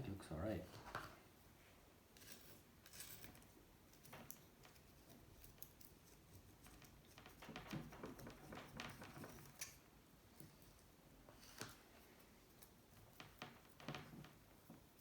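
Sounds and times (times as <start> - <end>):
light scraping on metal: 2.2 - 3.5.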